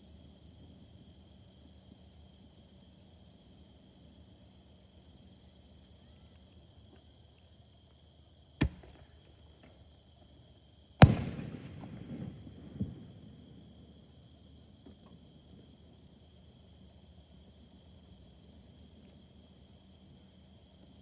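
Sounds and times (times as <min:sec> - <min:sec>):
insects chirring: 0:00.0 - 0:21.0
firework shells bursting: 0:08.6 - 0:09.7, 0:11.0 - 0:13.4
firework crackling: 0:11.0 - 0:13.4.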